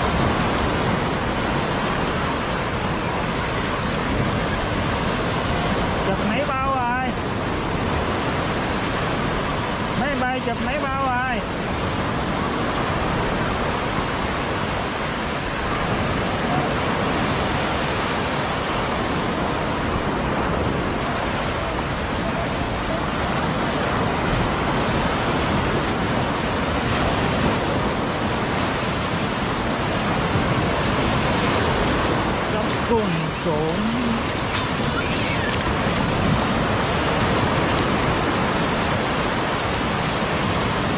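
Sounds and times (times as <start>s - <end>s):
sea surf breaking: 0.0s - 40.9s.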